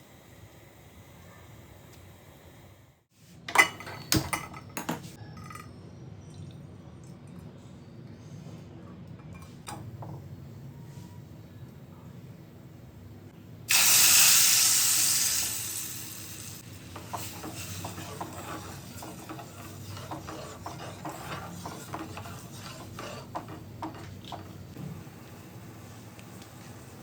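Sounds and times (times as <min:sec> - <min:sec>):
food sizzling in hot oil: 0:13.7 - 0:20.3.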